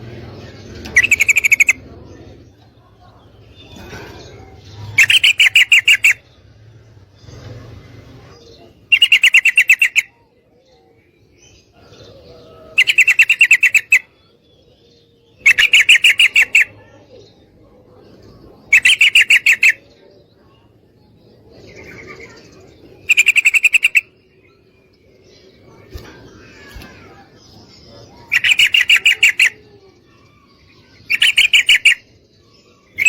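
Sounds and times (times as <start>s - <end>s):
bird rapid chattering calls: 0.8s - 1.8s, 3.4s - 6.4s, 8.3s - 10.2s, 12.8s - 14.1s, 15.4s - 16.8s, 18.7s - 19.8s, 21.7s - 24.2s, 25.7s - 32.1s.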